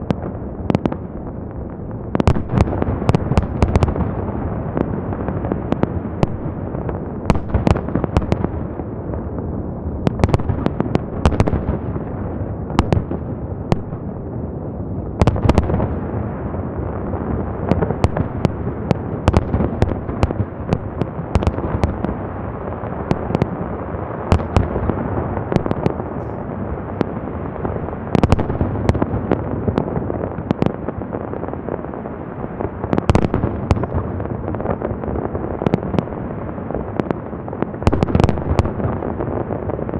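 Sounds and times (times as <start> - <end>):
fireworks rumble and crackle: 0.0 - 39.9
sharp firework bangs: 2.2 - 8.9, 10.0 - 14.2, 15.1 - 31.5, 32.4 - 35.0.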